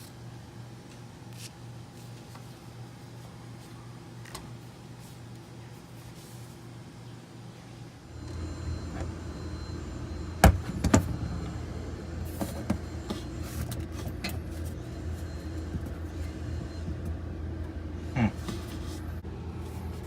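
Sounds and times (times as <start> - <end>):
motor low drone: 8.1 - 20.0.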